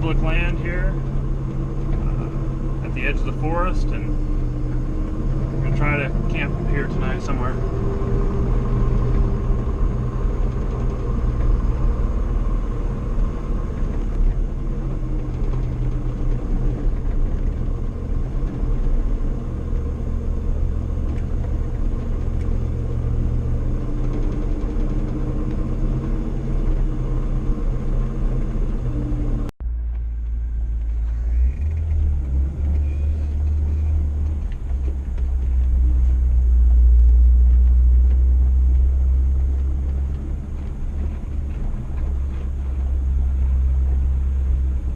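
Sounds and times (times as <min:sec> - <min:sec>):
truck engine rumbling: 0:00.0 - 0:44.9.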